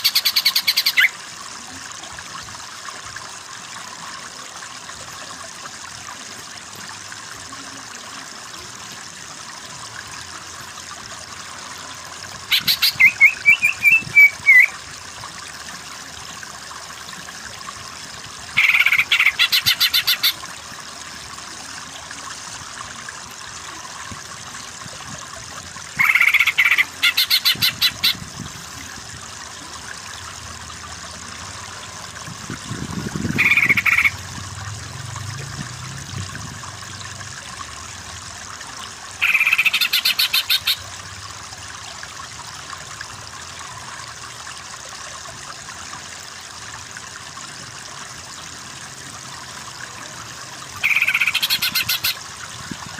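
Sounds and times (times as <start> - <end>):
bird chattering calls: 0.0 - 1.1, 12.5 - 14.7, 18.6 - 20.4, 26.0 - 28.2, 33.4 - 34.1, 39.2 - 40.8, 50.8 - 52.2
flowing water hiss: 0.0 - 52.9.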